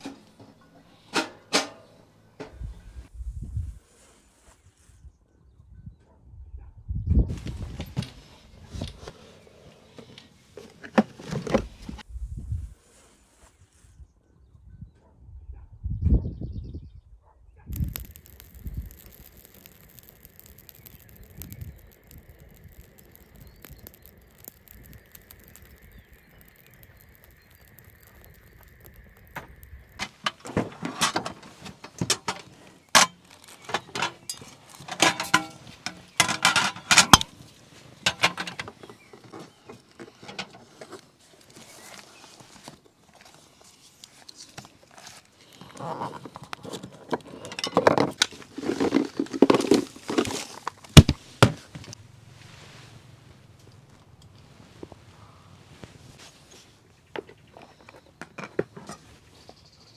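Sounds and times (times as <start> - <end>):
hard objects clinking and knocking: 17.7 - 37.3.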